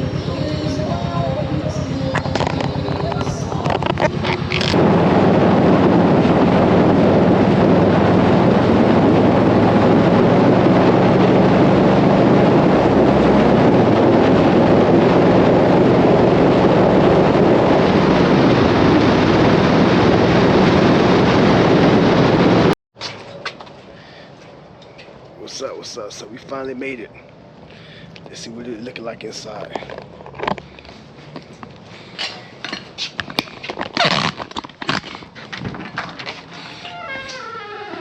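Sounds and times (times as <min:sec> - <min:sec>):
low engine drone: 0:00.0 - 0:22.8
wind and road noise: 0:00.0 - 0:38.0.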